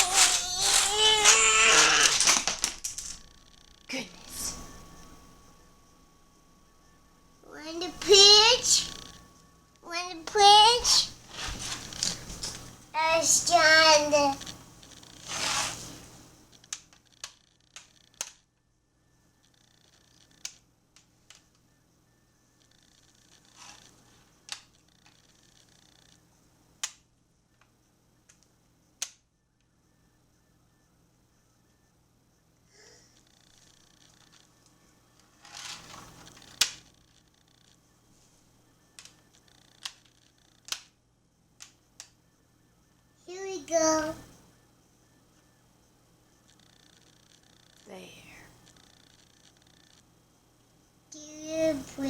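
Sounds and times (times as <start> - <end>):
toy letter pieces clicking: 0.0 - 3.2, 16.7 - 18.4
toy letters rustling: 0.0 - 3.3, 9.9 - 16.0, 22.6 - 26.2, 35.3 - 37.8.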